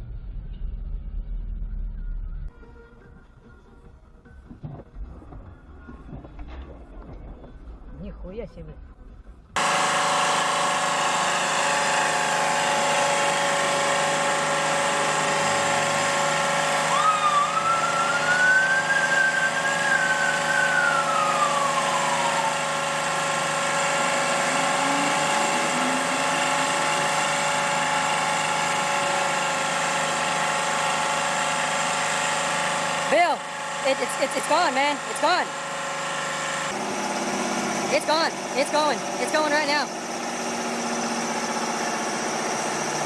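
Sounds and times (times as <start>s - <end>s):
large engine whining: 8.8s - 43.0s
whistle-like tone: 16.9s - 22.8s, 24.4s - 27.0s.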